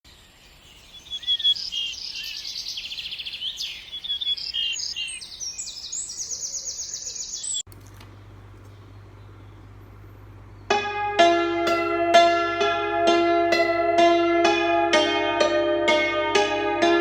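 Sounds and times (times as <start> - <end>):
birds trilling and chirping: 0.2 - 7.7.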